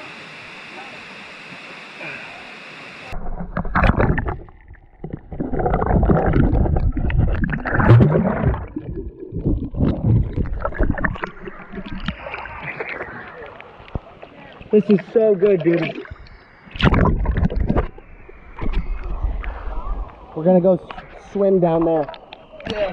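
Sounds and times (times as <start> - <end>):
water splashing and sloshing: 3.2 - 19.2.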